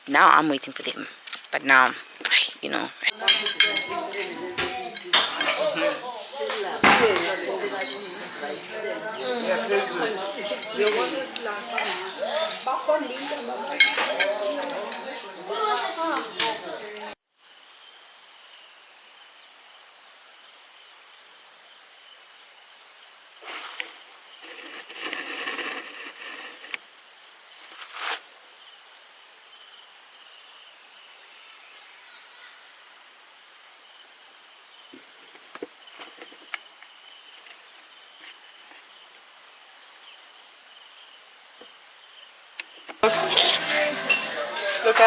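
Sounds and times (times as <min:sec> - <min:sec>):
insect shrill chorus: 0:06.8 - 0:11.0, 0:17.2 - 0:43.1
insect chirping in pulses: 0:17.2 - 0:43.1.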